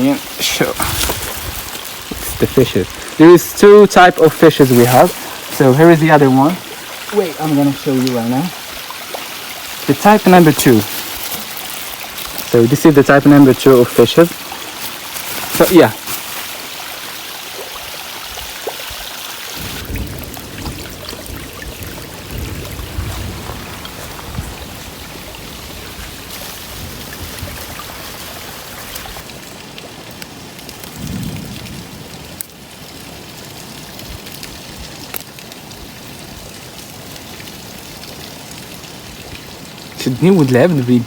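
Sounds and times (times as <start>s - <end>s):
running water splashing: 0.0s - 29.8s.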